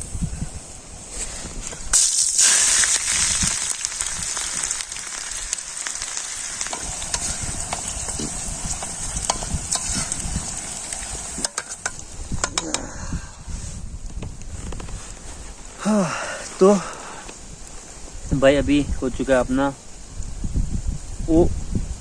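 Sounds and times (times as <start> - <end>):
onions sizzling in hot oil: 1.9 - 12.6.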